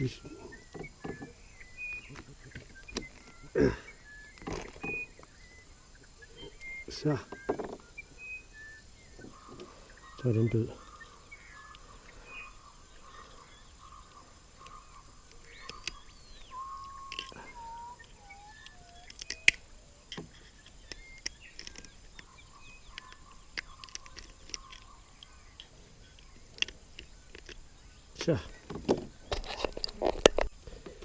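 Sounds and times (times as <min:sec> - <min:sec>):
wild birds whistling: 0:00.0 - 0:31.0.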